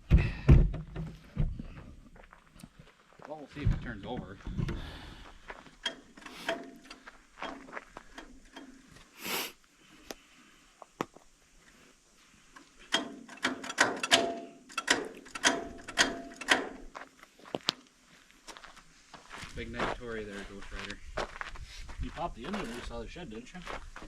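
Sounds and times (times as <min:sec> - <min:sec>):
metallic clanks on tractor: 0:05.8 - 0:08.8, 0:12.8 - 0:16.9.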